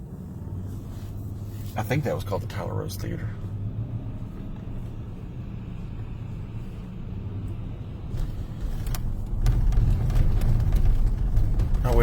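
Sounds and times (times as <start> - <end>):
car road noise rumble: 0.0 - 12.0
tyres rolling over brick paving: 8.2 - 12.0.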